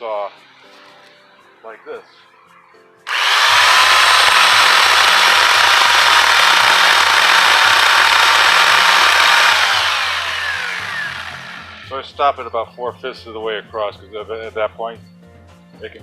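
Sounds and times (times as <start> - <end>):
electric chainsaw cutting wood: 3.1 - 11.9
motor winding down whine: 3.1 - 11.9.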